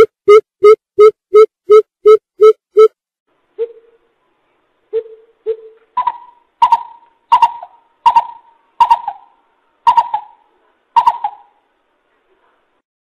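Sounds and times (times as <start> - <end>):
bird deep hooting call: 5.0 - 9.3, 9.9 - 10.4, 11.0 - 11.6.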